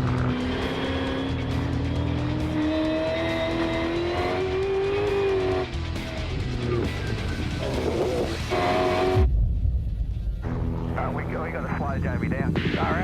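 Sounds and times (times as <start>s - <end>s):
race car engine accelerating: 0.0s - 9.2s
music: 0.0s - 13.0s.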